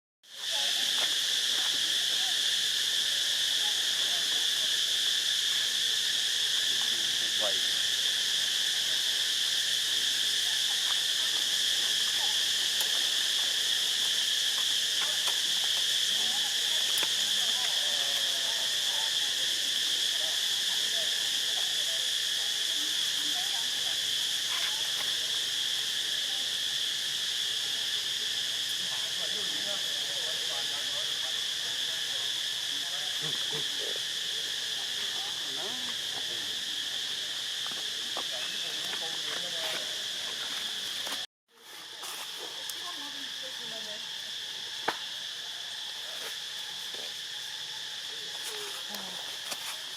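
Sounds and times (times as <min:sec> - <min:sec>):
high-pitched insect chorus: 0:00.3 - 0:49.9.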